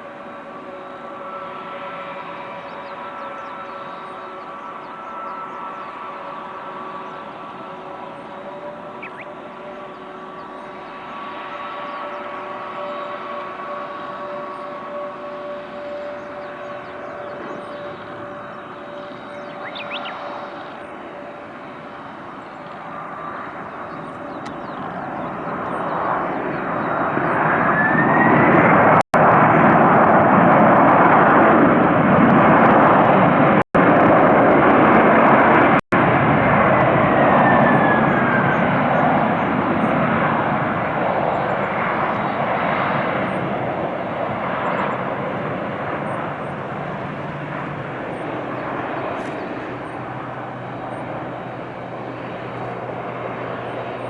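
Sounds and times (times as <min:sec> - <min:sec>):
engine whine: 0:00.0 - 0:54.0
jet airliner passing: 0:00.0 - 0:54.0.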